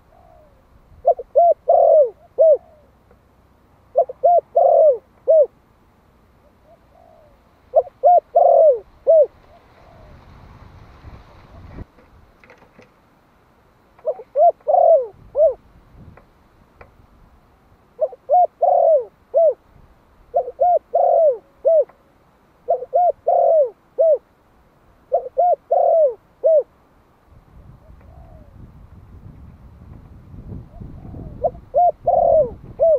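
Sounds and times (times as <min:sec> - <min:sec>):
dove cooing: 0:00.0 - 0:03.1, 0:03.8 - 0:05.6, 0:06.4 - 0:10.3, 0:14.0 - 0:15.6, 0:17.9 - 0:19.7, 0:20.3 - 0:24.3, 0:25.1 - 0:26.7, 0:27.8 - 0:28.7, 0:30.6 - 0:32.9.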